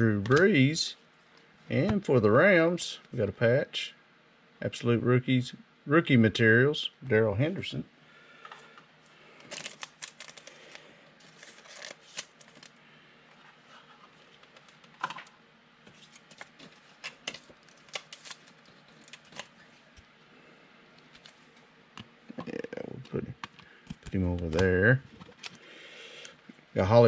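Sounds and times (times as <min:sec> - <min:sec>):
cards rustling: 0:09.4 - 0:12.8, 0:15.8 - 0:19.8, 0:23.5 - 0:25.6.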